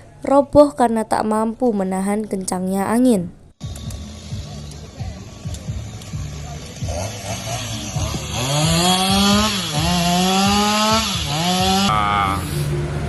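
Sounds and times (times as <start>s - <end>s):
chainsaw cutting wood: 5.4s - 12.0s.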